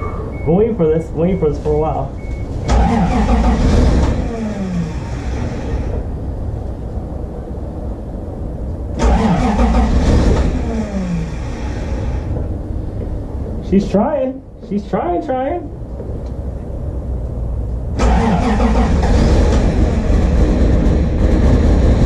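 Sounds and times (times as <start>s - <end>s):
car engine cranking: 2.3s - 6.1s, 9.0s - 12.4s, 18.0s - 22.0s.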